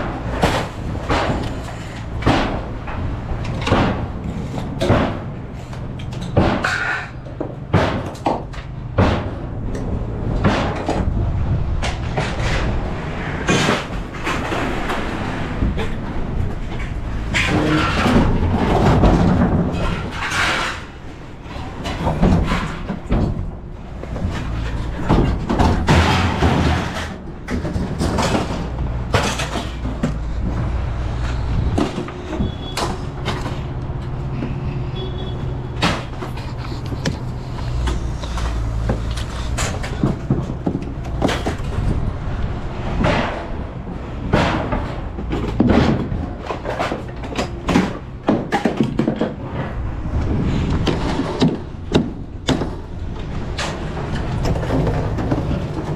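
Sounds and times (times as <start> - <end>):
knocks clanks and bangs: 0.0 - 55.9
vehicle engine humming: 27.2 - 45.6.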